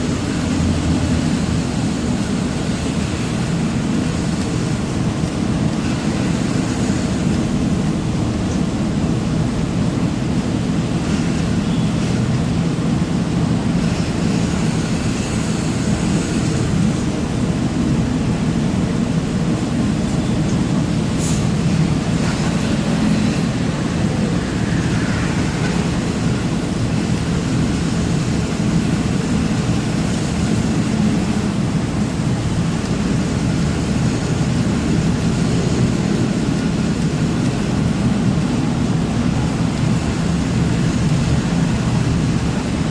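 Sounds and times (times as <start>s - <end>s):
road noise: 0.0s - 42.9s
truck engine rumbling: 0.0s - 42.9s.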